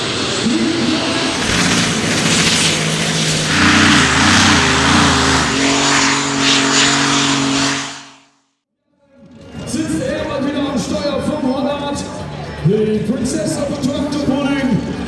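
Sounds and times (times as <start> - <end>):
tractor engines running loud: 0.0 - 8.2
strong hiss: 0.8 - 8.1.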